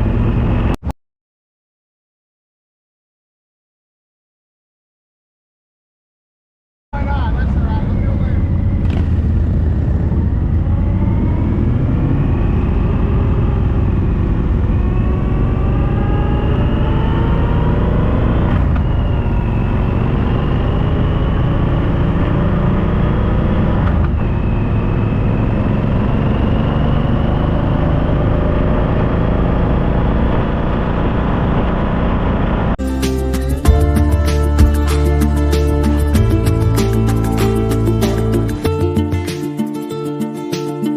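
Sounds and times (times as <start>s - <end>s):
wind and road rumble: 0.0s - 0.8s, 7.0s - 32.8s
motorcycle engine revving: 7.4s - 32.8s.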